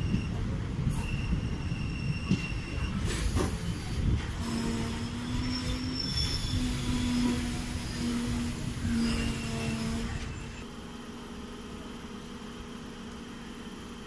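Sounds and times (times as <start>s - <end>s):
train rumbling on rails: 0.0s - 10.7s
high-pitched wheel squeal: 1.0s - 3.5s, 4.4s - 10.5s.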